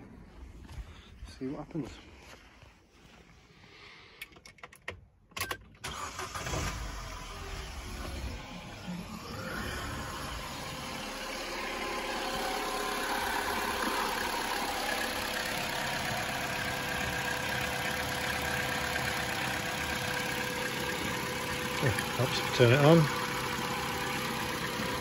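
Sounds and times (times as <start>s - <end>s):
car engine idling: 5.9s - 25.0s.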